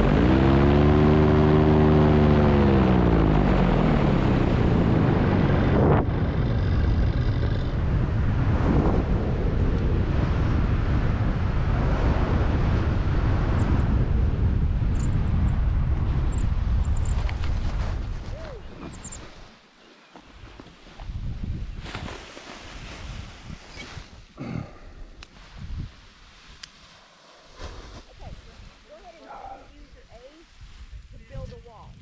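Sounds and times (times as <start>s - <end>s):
paramotor engine winding down: 0.0s - 8.5s
rush of air: 5.3s - 19.6s, 21.0s - 29.2s.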